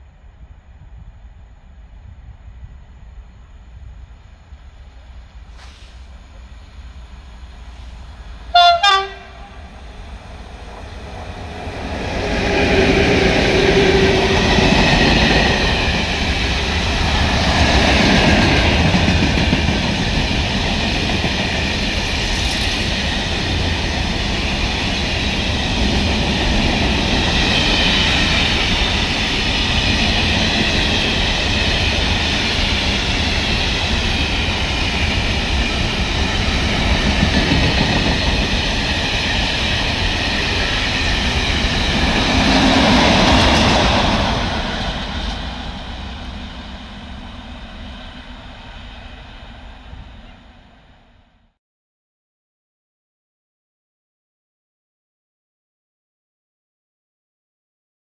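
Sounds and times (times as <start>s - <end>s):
wheels rumbling on rails: 4.4s - 50.5s
train horn blast: 8.5s - 9.8s.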